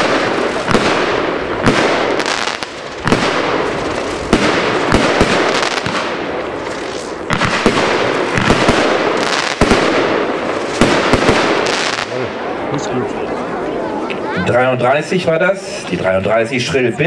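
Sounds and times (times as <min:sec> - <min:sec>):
crackling hiss: 0:00.0 - 0:12.5
firework shots and bursts: 0:00.0 - 0:12.6.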